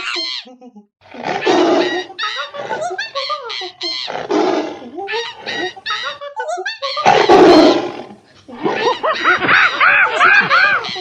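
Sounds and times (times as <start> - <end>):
squeaky cartoon vocal chirps: 0.0 - 0.6, 1.4 - 4.4, 5.0 - 7.9
tiger roaring: 1.0 - 2.1, 4.1 - 5.5, 7.1 - 9.0.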